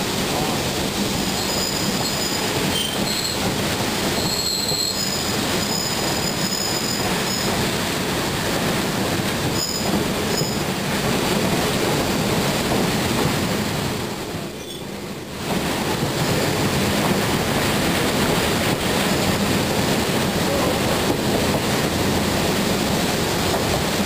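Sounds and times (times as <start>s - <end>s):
train rumbling: 0.0s - 24.0s
wheels squealing on rails: 0.4s - 7.7s, 9.4s - 10.8s, 14.5s - 15.1s, 16.0s - 16.7s, 18.2s - 19.6s.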